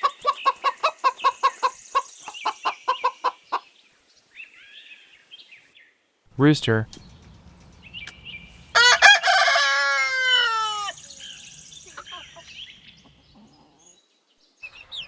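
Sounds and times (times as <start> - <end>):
rooster crowing: 8.7 - 11.1.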